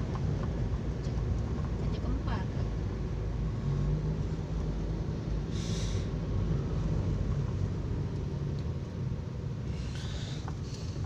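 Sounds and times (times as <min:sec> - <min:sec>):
car rumble inside cabin: 0:00.0 - 0:11.0.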